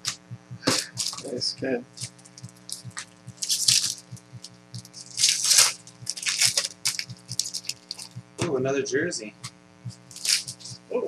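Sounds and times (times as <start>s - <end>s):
steady low hum: 0.0s - 11.0s
foil wrappers crinkling and tearing: 0.8s - 8.2s, 10.1s - 10.8s.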